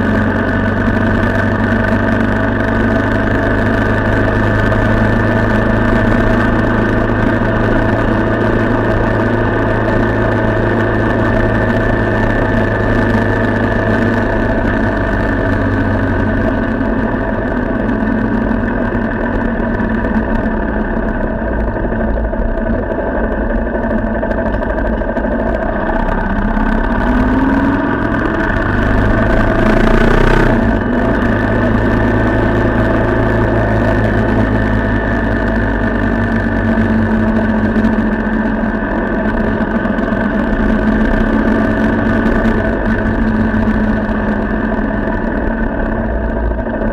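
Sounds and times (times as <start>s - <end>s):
vehicle engine running: 0.0s - 46.9s
rising tone: 20.0s - 35.0s.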